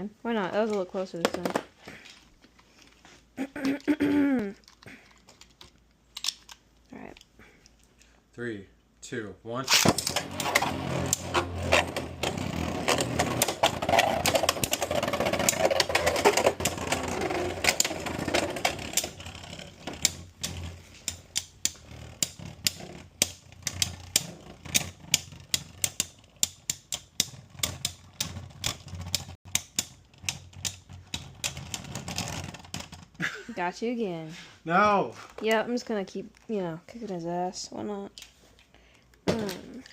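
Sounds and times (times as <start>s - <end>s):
spinning tops whirring: 9.7s - 33.1s.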